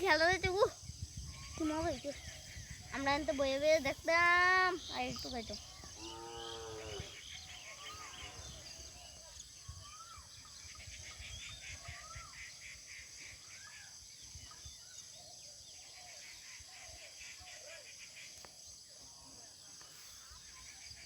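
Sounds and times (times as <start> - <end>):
wind on microphone: 0.0 - 12.6
birds chirping: 0.0 - 21.0.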